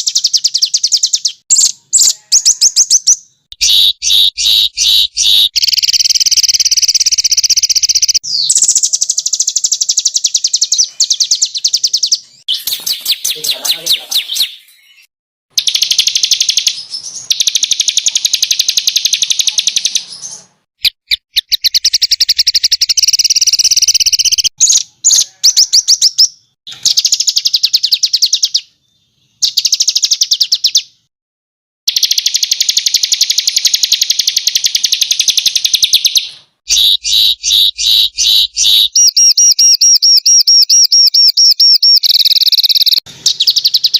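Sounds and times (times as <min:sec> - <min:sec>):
songbird trilling: 0:00.0 - 0:28.7, 0:29.3 - 0:30.9, 0:31.9 - 0:43.9.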